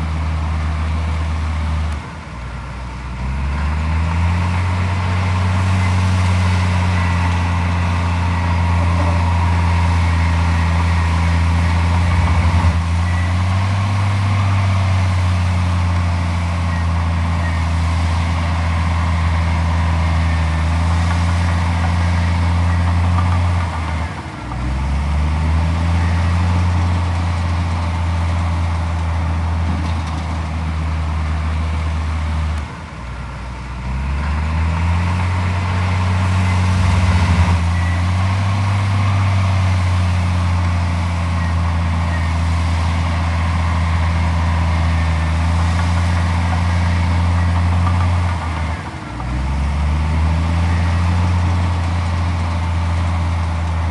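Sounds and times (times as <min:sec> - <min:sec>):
heavy diesel engine revving: 0:33.8 - 0:53.9.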